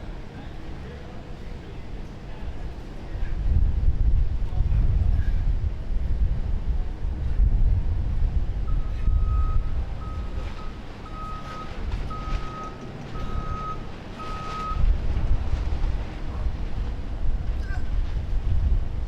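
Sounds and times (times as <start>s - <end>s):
reversing alarm beeping: 8.7s - 14.9s.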